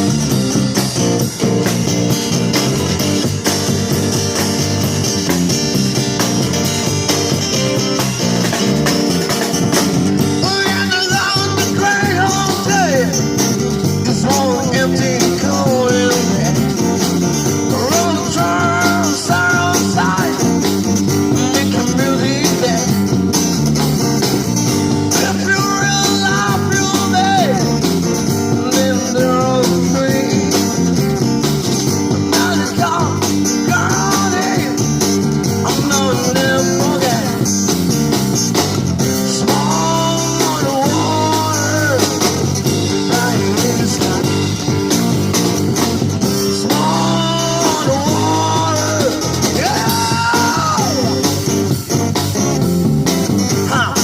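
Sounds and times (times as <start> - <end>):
amplified guitars: 0.0 - 54.0
person singing: 10.3 - 13.2, 14.0 - 16.8, 17.7 - 23.0, 25.1 - 27.8, 28.5 - 30.8, 32.2 - 35.0, 35.6 - 37.5, 39.2 - 44.7, 46.5 - 51.8.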